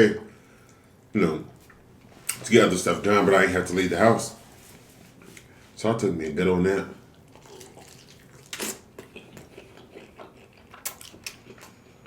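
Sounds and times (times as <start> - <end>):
wet chewing: 7.1 - 12.0.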